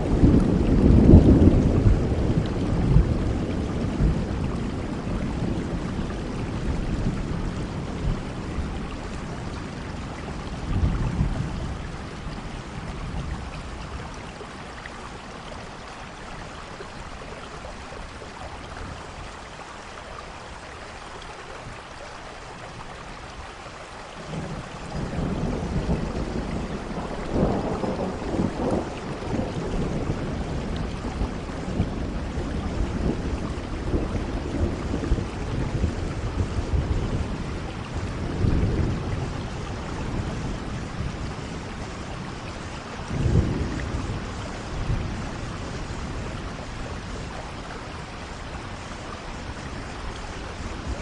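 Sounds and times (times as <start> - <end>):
thunder rumbling: 0.0 - 19.2, 24.2 - 51.0
steady rain falling: 0.0 - 51.0.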